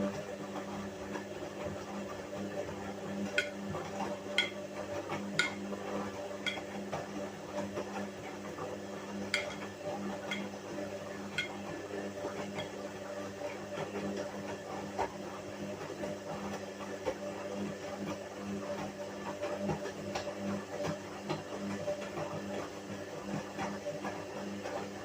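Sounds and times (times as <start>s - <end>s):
washing machine motor hum: 0.0s - 25.0s
hard object clinking in drum: 9.4s - 9.6s.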